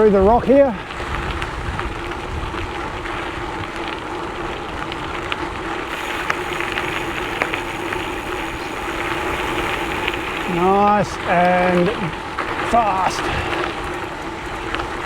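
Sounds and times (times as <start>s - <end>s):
bike tyres crunching on gravel: 0.9s - 15.0s
steady hum: 5.9s - 12.2s.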